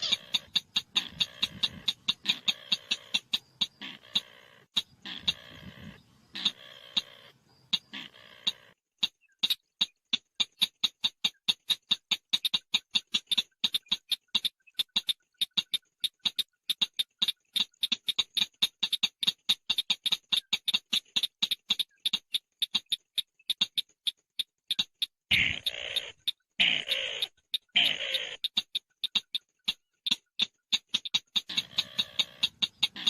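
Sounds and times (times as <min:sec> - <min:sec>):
bird call of sharp high notes: 0:00.0 - 0:08.8.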